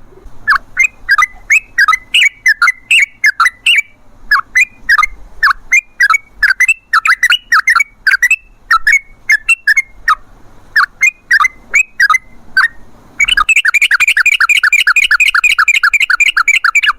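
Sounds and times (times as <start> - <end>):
bird rolling run of notes: 0.0 - 3.9, 10.8 - 16.9
bird chirping: 0.0 - 10.2, 10.8 - 16.9.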